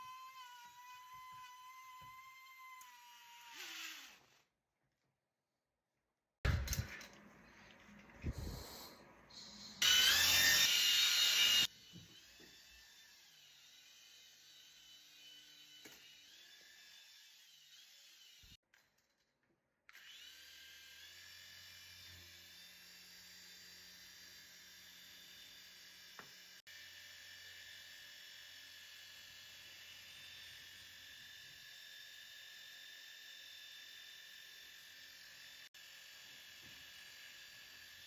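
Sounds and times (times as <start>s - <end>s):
toy high-pitched electronic whine: 9.4s - 11.7s.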